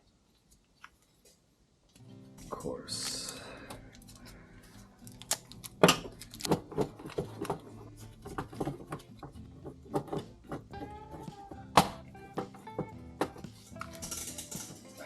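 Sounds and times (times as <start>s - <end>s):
small metal parts clicking: 13.6s - 15.0s.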